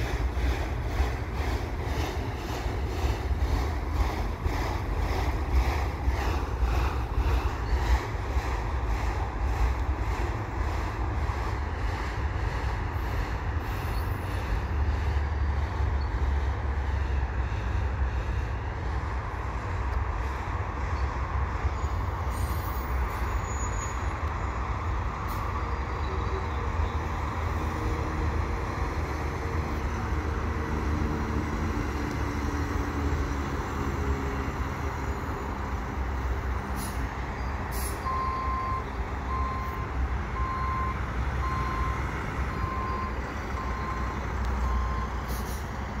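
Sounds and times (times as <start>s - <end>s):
freight train rumbling: 0.0s - 46.0s
truck reversing alarm beeps: 37.4s - 45.8s.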